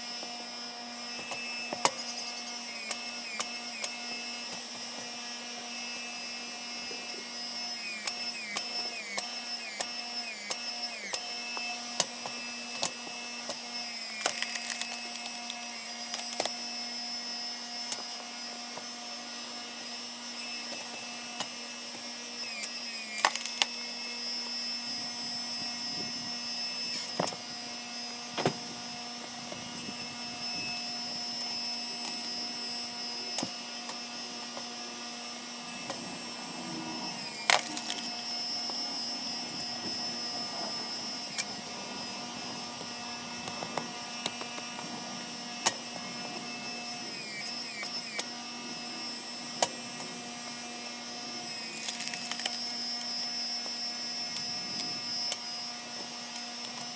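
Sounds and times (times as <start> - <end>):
log splitter engine running: 27.1 - 48.0.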